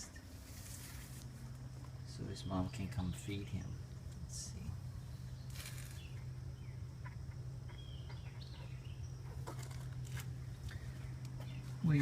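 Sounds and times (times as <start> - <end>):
steady low hum: 0.0 - 12.0
rustling: 0.4 - 1.5, 5.5 - 6.1
small bird chirping: 2.1 - 12.0.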